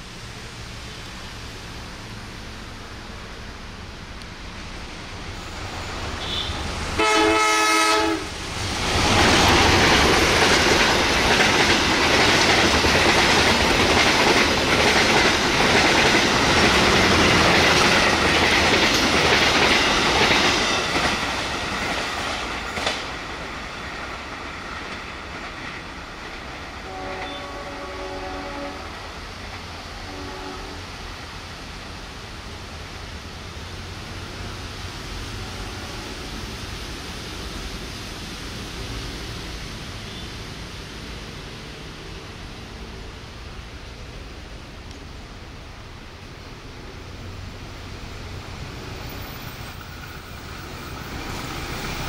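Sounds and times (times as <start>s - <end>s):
distant train horn: 6.2s - 8.3s, 26.8s - 29.0s, 30.0s - 30.9s
locomotive horn: 6.2s - 8.3s, 26.8s - 29.0s, 30.0s - 30.9s
train wheels clattering: 9.0s - 23.5s.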